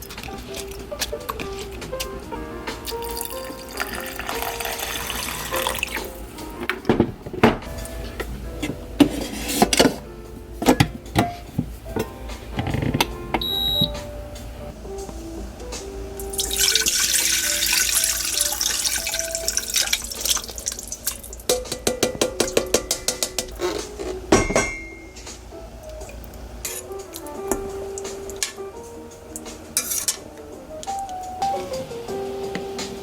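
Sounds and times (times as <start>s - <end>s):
soft background music: 0.0s - 33.0s
water running from a tap: 2.8s - 6.3s, 16.2s - 21.6s
dishes clinking: 10.6s - 13.9s, 21.4s - 25.4s, 26.6s - 27.7s.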